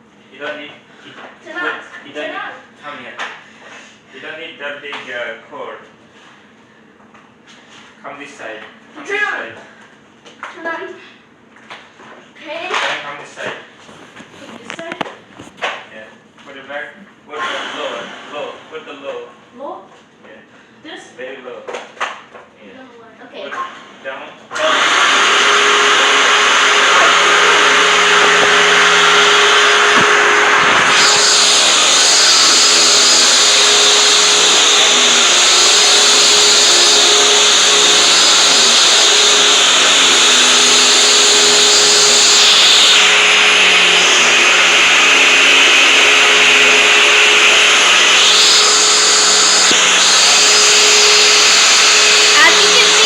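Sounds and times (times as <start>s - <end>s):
vacuum cleaner running: 17.3s - 19.2s, 23.5s - 53.0s.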